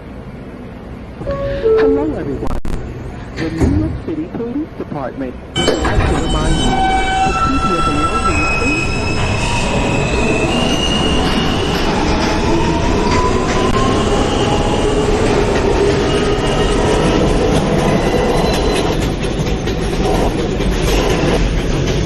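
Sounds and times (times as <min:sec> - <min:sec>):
train wheels rumbling on rail: 0:00.0 - 0:22.0
faint squealing tones: 0:05.6 - 0:11.8.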